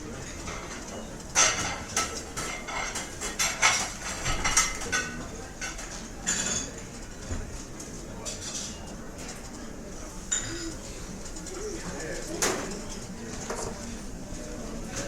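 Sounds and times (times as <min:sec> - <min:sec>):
dishes and cutlery clattering: 0:00.2 - 0:06.9, 0:08.2 - 0:09.5, 0:10.3 - 0:13.9.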